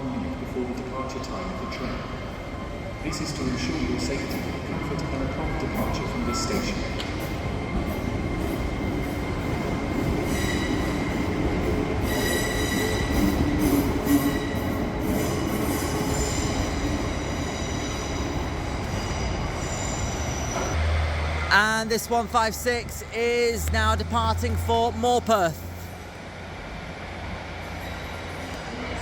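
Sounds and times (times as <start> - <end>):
train rumble: 0.0 - 29.0
train wheels squealing on rails: 2.7 - 20.9, 27.6 - 29.0.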